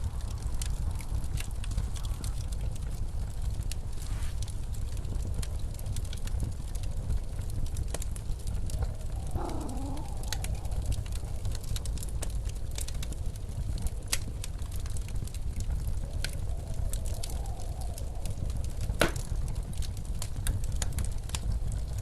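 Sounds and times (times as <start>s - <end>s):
wind rumbling: 0.0s - 22.0s
wood fire crackling and popping: 0.0s - 22.0s
wind howling: 6.5s - 21.9s.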